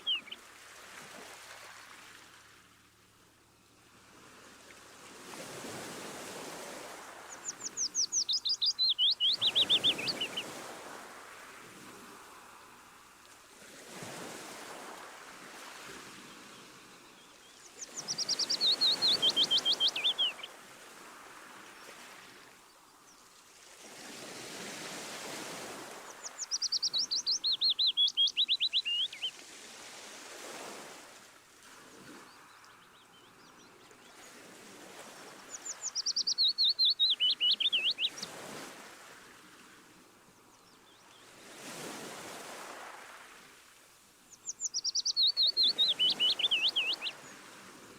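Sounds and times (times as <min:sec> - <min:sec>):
songbird singing: 0:00.0 - 0:00.4, 0:07.2 - 0:10.6, 0:16.4 - 0:20.6, 0:26.0 - 0:29.4, 0:32.2 - 0:34.2, 0:35.2 - 0:38.4, 0:44.2 - 0:47.5
waves washing in and out: 0:00.0 - 0:47.9.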